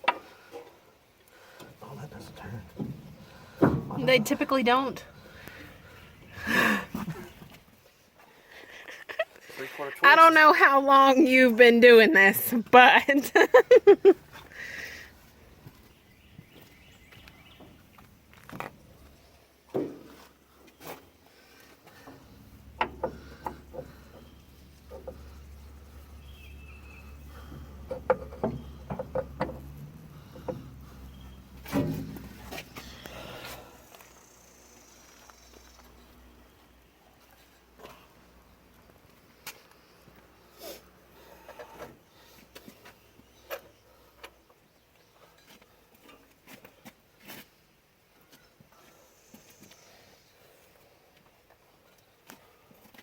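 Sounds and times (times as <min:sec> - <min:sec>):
low steady hum: 0:21.4 - 0:39.3.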